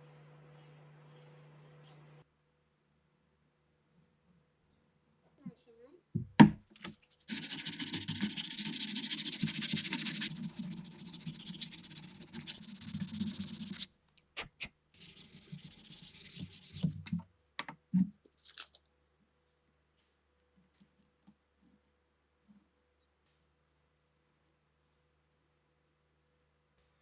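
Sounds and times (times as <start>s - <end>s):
sanding rubbing strokes: 7.1s - 13.9s, 15.0s - 16.9s.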